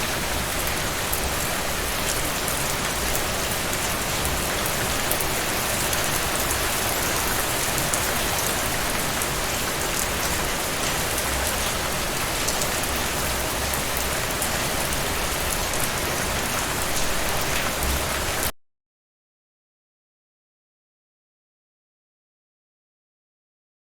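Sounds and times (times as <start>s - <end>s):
rain falling on a surface: 0.0s - 18.5s.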